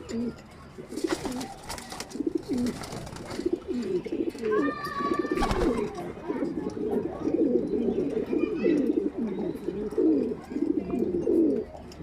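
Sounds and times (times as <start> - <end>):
pigeons cooing: 0.0 - 11.8.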